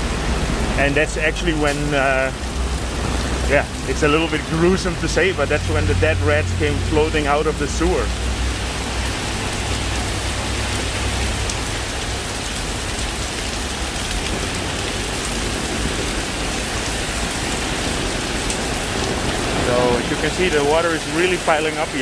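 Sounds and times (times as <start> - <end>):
heavy rain on flooded street: 0.0 - 22.0.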